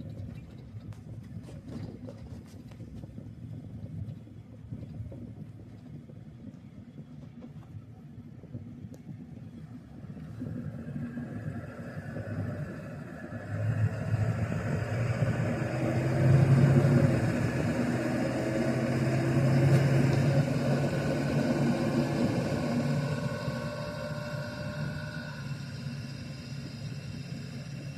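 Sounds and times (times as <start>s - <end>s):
vehicle engine running: 0.0s - 27.9s.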